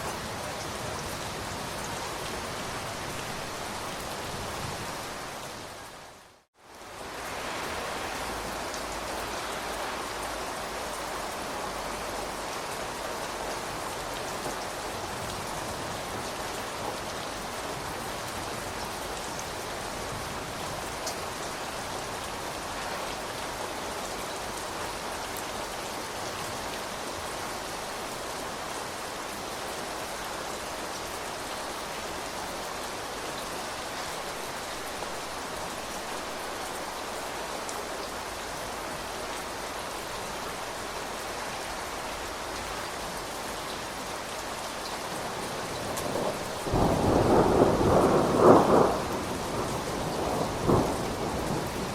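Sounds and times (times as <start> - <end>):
steady rain hiss: 0.0 - 51.9.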